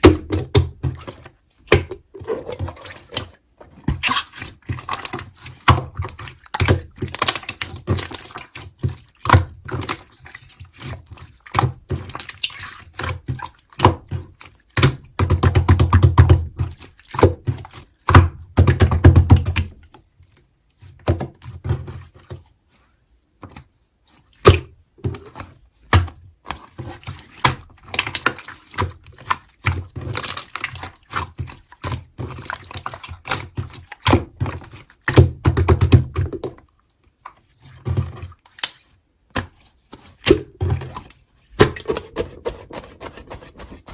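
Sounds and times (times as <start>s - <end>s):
slime squishing with wet clicks: 0.0s - 41.7s.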